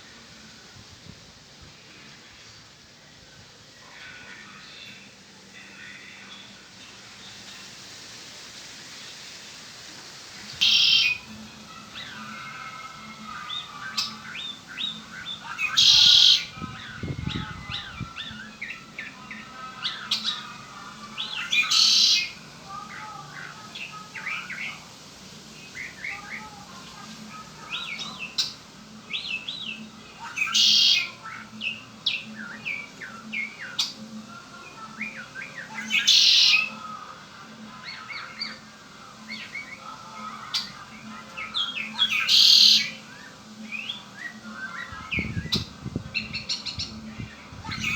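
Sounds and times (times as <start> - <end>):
blackbird buzzing trill: 10.4 - 19.1, 19.8 - 22.4, 29.2 - 34.0, 35.8 - 36.7, 41.5 - 47.9
bird chirps and whistles: 10.6 - 11.2, 15.6 - 16.5, 42.1 - 43.0.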